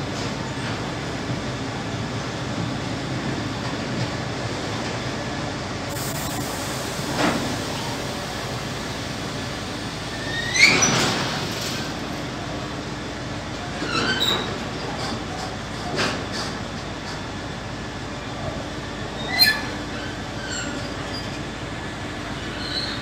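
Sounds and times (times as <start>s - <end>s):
train clanks: 0.0s - 5.3s, 6.6s - 23.0s
freight train rumbling past: 0.0s - 23.0s.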